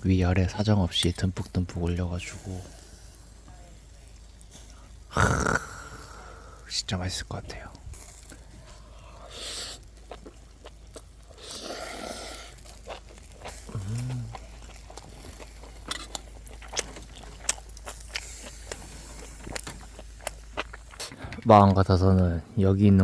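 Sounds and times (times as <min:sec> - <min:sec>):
breathy noises: 0:04.6 - 0:06.7, 0:13.5 - 0:14.6
person humming: 0:05.2 - 0:06.6, 0:13.7 - 0:14.3
chewing clicks and crunches: 0:07.6 - 0:21.9.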